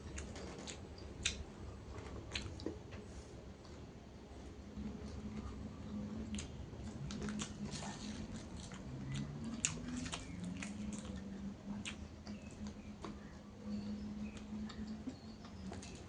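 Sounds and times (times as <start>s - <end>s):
person chewing crunchy food: 5.0s - 13.3s.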